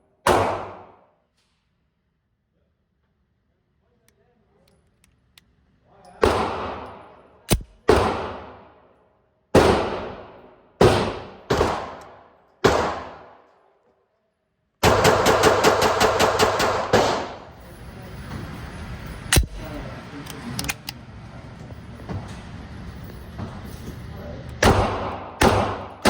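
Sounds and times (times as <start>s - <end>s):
gunshots: 6.2s - 6.9s, 7.5s - 8.7s, 9.6s - 12.0s, 12.6s - 13.4s, 14.8s - 17.4s, 24.6s - 26.0s
rapid gunfire burst: 14.8s - 17.3s.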